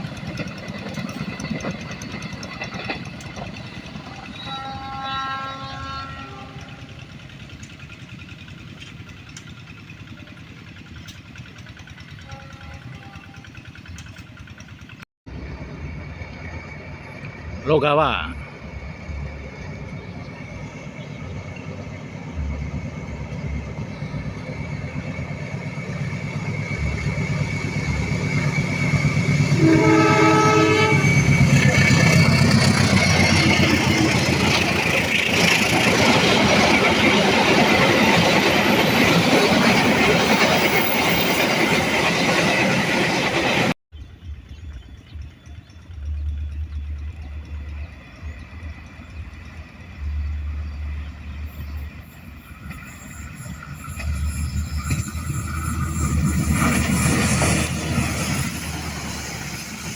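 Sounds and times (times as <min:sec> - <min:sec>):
train engine noise: 0:00.0 - 0:59.9
train wheel clatter: 0:00.0 - 0:59.9
train horn: 0:04.0 - 0:07.2, 0:12.0 - 0:13.7, 0:29.4 - 0:33.5
low rumble: 0:44.0 - 0:51.8.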